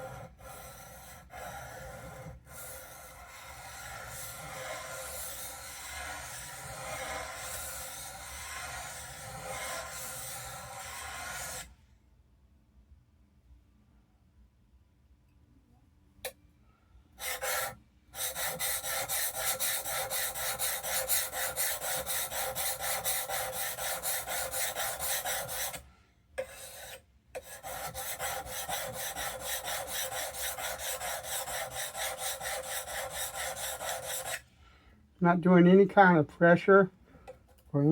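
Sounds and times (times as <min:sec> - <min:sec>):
blade scraping on oilstone: 0:00.0 - 0:11.7, 0:26.4 - 0:34.4.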